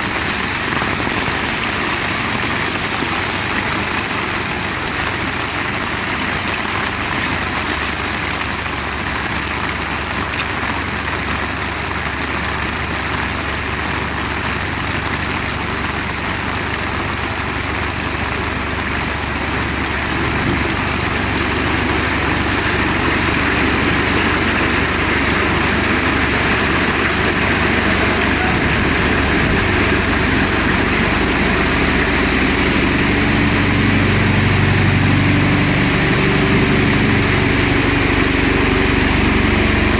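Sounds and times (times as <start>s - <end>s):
heavy rain falling: 0.0s - 39.9s
low steady hum: 16.6s - 39.9s.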